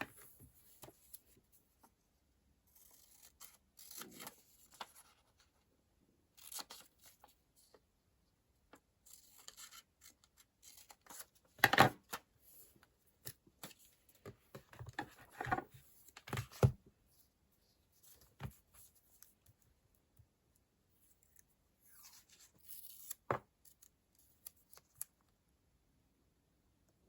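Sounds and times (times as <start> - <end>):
paper and stickers handled: 2.6 - 5.7, 20.9 - 25.3.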